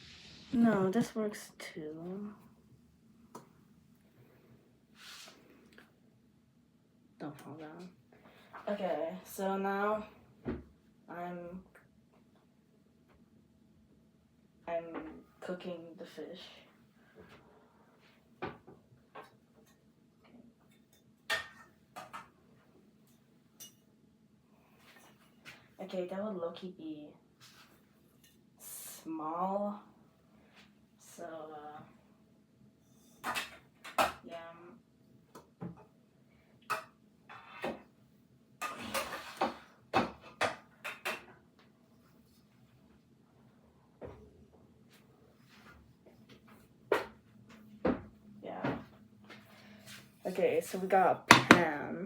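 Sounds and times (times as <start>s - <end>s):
kitchenware scraping: 38.6s - 39.7s.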